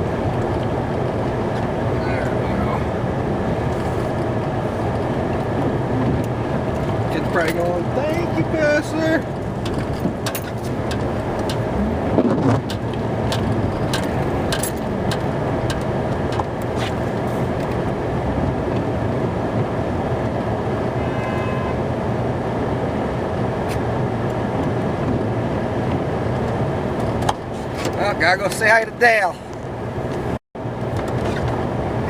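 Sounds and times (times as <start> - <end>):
truck engine and road noise: 0.0 - 32.0
sharp clicks and knocks: 9.4 - 17.8, 25.8 - 28.7.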